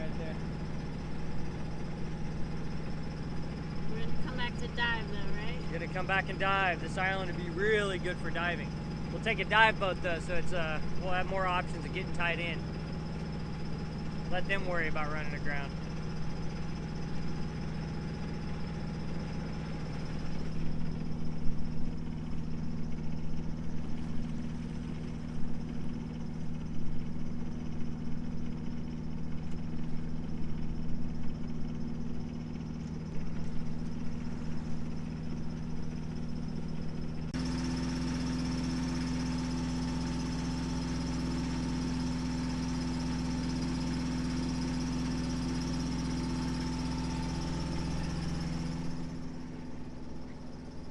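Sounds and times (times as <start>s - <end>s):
boat engine humming: 0.0s - 50.9s.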